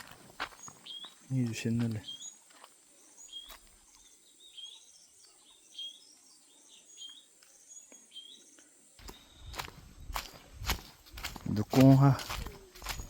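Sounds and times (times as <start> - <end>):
footsteps: 0.0 - 2.8, 9.0 - 13.0
bird chirping: 0.5 - 13.0.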